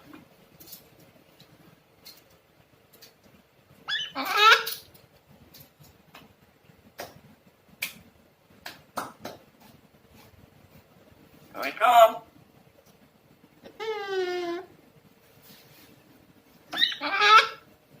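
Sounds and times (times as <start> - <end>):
parrot laugh-like call: 3.9 - 4.8, 16.7 - 17.6.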